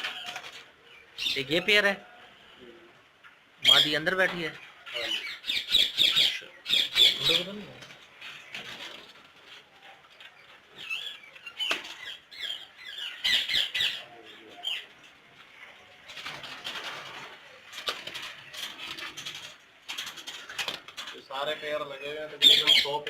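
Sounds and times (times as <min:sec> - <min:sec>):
wings flapping: 0:00.0 - 0:00.8, 0:07.1 - 0:10.7, 0:11.5 - 0:12.1, 0:16.0 - 0:21.5
parakeets squawking and chirping: 0:03.6 - 0:21.0, 0:21.6 - 0:23.0.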